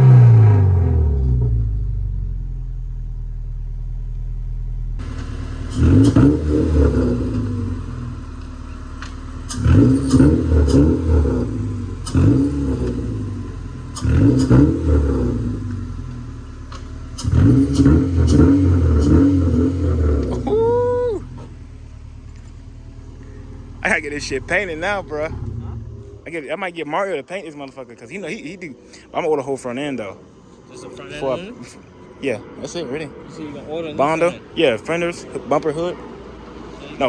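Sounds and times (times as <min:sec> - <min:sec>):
car engine revving: 0:00.0 - 0:28.8.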